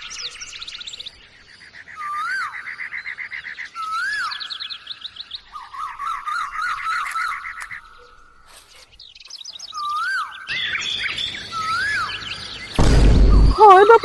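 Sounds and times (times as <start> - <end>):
bird whistle rising and falling: 9.8 - 12.4.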